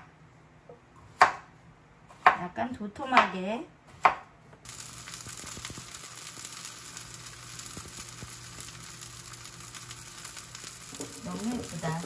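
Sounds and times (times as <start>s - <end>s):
zucchini sizzling in a pan: 4.6s - 12.0s.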